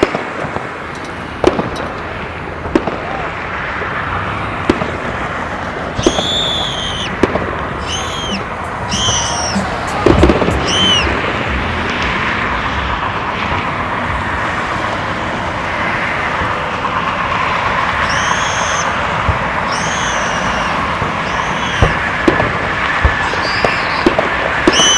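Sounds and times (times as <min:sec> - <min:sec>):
crowd noise: 0:00.0 - 0:24.9
fireworks cracks and bangs: 0:00.0 - 0:24.9
traffic noise: 0:00.0 - 0:24.9
fireworks whistles: 0:04.7 - 0:13.7, 0:15.5 - 0:24.9.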